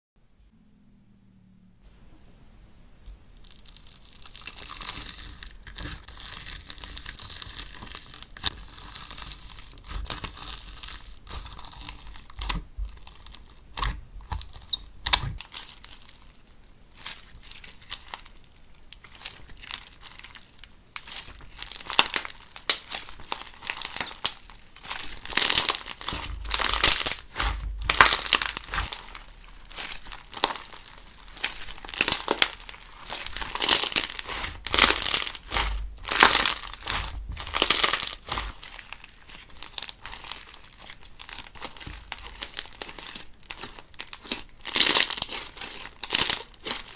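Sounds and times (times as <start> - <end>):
slime squeezed by hand crackling: 3.4 - 16.1, 19.0 - 46.9.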